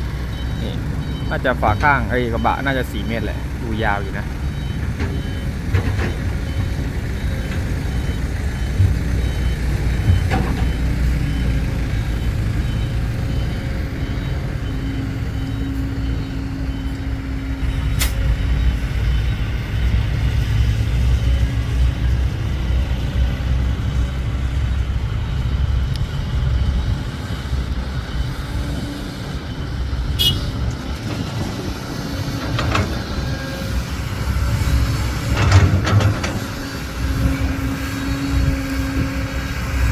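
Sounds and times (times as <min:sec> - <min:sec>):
diesel truck engine running: 0:00.0 - 0:39.9
reversing beeper: 0:00.1 - 0:21.8.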